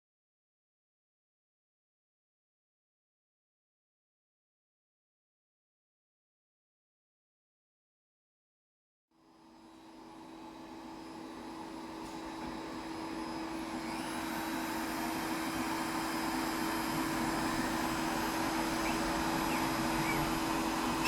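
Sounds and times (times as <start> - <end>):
machine whirring with low hum: 9.2 - 21.0.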